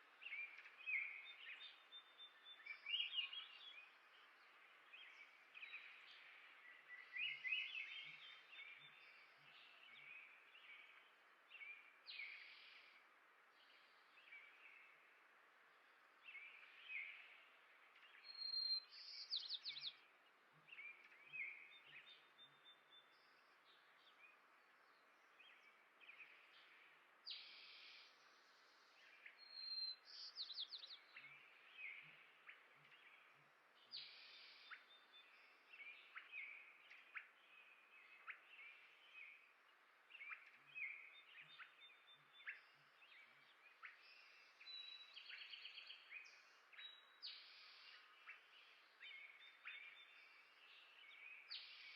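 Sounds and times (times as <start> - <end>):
faint steady hiss: 0.0 - 51.9
songbirds chirping: 0.0 - 51.9.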